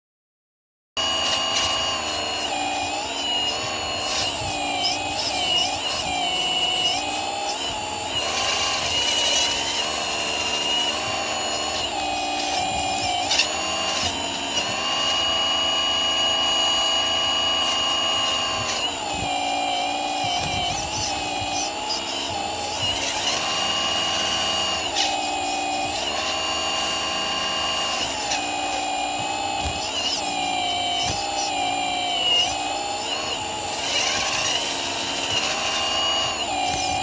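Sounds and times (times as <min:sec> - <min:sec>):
hydraulic pump motor whine: 0:01.0 - 0:37.0.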